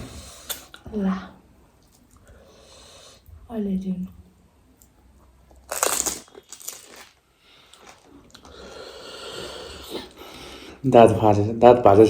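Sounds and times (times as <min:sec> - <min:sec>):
crunchy snack being chewed: 0:05.5 - 0:08.6.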